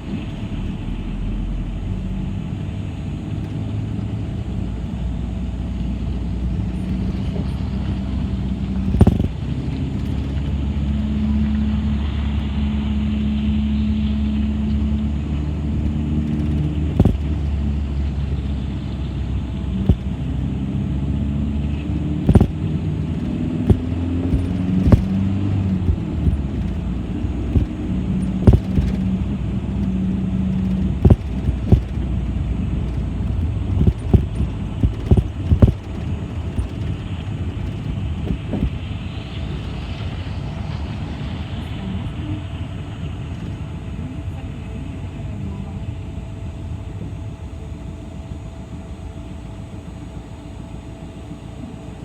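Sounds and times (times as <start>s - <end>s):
bus engine running: 0.0s - 52.0s
sharp knocks and rattles: 8.7s - 11.4s, 15.0s - 18.8s, 19.7s - 20.3s, 21.7s - 38.9s.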